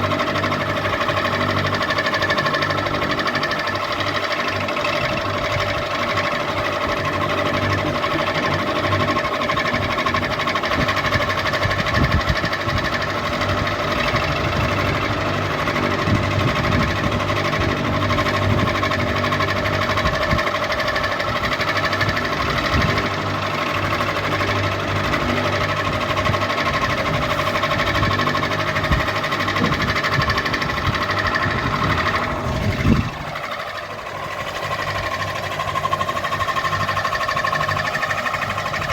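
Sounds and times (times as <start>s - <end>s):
ceiling fan motor hum: 0.0s - 38.9s
mechanical clatter: 0.0s - 38.9s.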